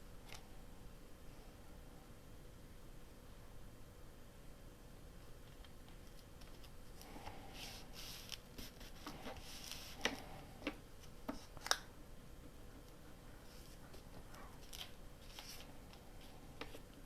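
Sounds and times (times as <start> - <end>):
paper rustling: 5.9 - 10.3, 14.6 - 16.9.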